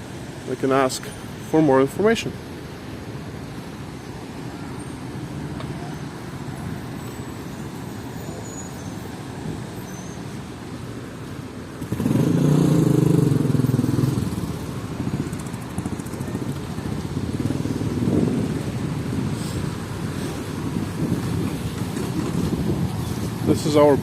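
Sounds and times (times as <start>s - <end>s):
city street traffic: 0.0s - 24.0s
vehicle passing close by: 11.8s - 23.6s.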